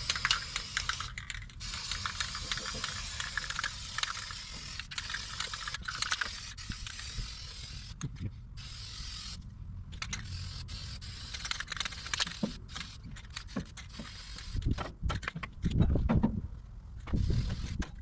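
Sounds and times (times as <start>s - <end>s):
spray can hissing: 0.0s - 8.0s, 8.6s - 9.4s, 10.2s - 14.7s, 17.2s - 17.8s.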